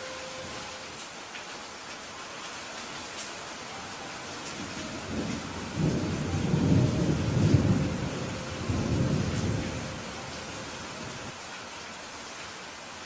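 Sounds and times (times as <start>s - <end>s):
steady rain falling: 0.0s - 13.0s
thunder rumbling: 4.3s - 11.3s.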